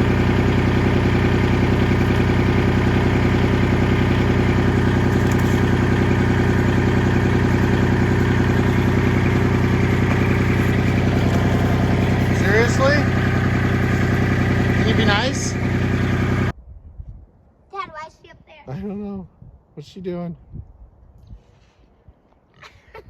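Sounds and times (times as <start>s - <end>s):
engine idling: 0.0s - 16.5s.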